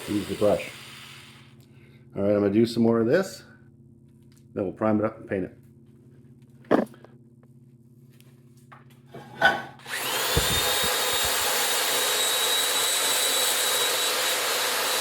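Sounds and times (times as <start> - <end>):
wire brush power tool whining: 0.0 - 1.5, 9.8 - 15.0.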